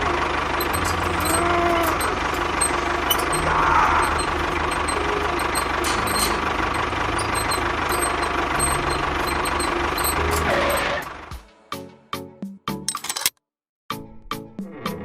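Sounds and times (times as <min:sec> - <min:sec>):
engine idling: 0:00.0 - 0:11.4.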